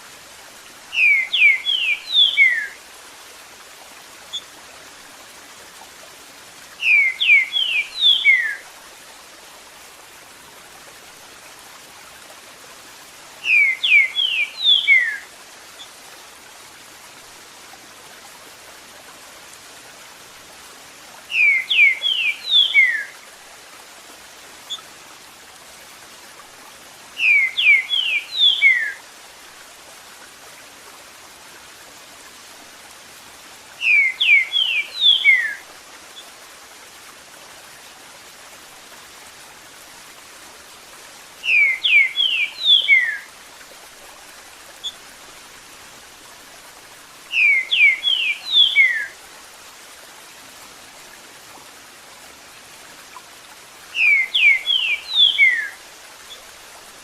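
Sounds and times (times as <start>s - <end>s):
bird whistling song: 0.9s - 2.8s, 6.8s - 8.6s, 13.4s - 15.2s, 21.3s - 23.2s, 27.2s - 29.0s, 33.8s - 35.6s, 41.4s - 43.3s, 47.3s - 49.1s, 54.0s - 55.8s.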